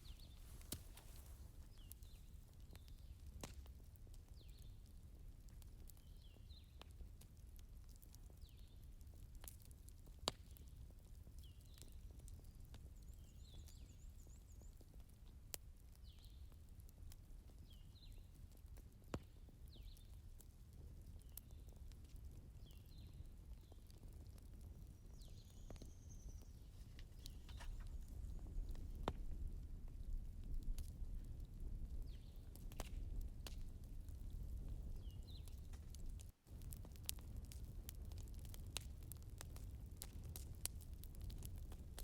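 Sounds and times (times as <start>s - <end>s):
firewood crackling: 0.0s - 42.0s
low fire rumble: 0.0s - 42.0s.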